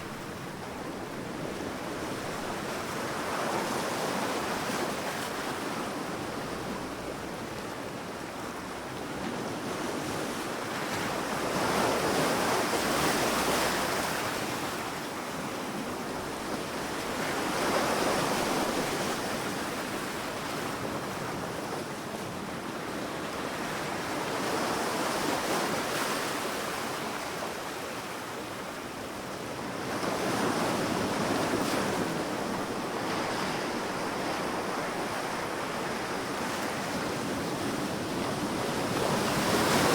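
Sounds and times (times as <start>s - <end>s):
waves breaking on beach: 9.9s - 39.9s.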